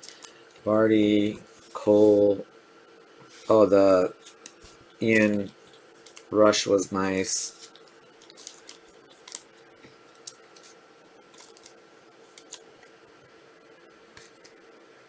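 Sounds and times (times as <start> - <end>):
faint steady hum: 0.0 - 15.0
trading cards clicking and rustling: 3.3 - 6.4, 7.4 - 12.9.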